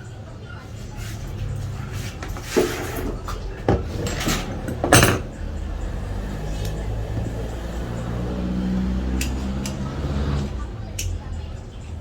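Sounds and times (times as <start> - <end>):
tools clattering on workbench: 1.9 - 5.3.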